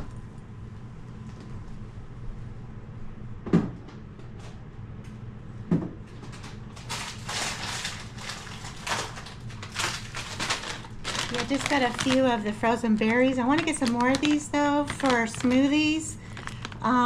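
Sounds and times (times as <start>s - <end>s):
plastic packaging crinkling: 6.4s - 17.0s
frozen food knocking into bin: 6.8s - 16.9s.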